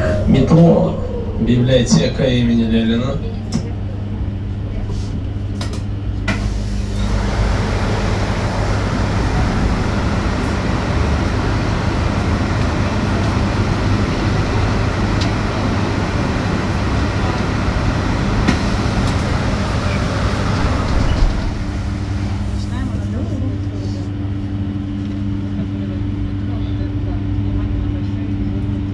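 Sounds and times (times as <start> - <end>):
road and tyre noise: 4.4 - 26.4.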